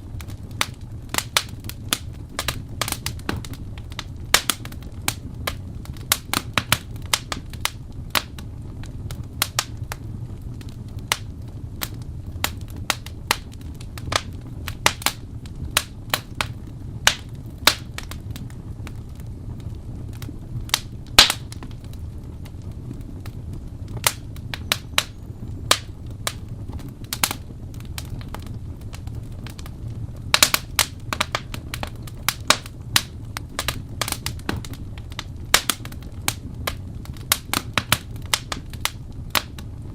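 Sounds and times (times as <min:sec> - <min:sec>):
low steady fire rumble: 0:00.0 - 0:39.9
wood fire crackling and popping: 0:00.0 - 0:39.9.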